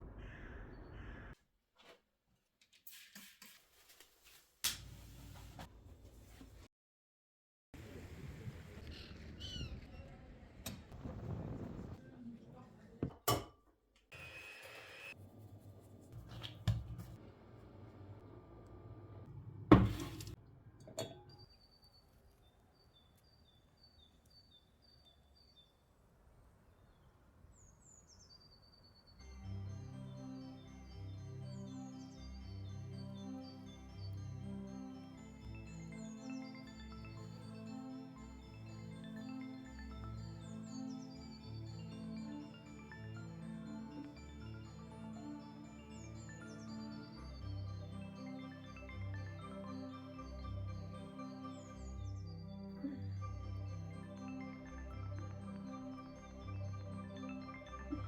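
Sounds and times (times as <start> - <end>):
faint birdsong: 0.0 - 1.4, 21.3 - 35.2, 45.2 - 58.0.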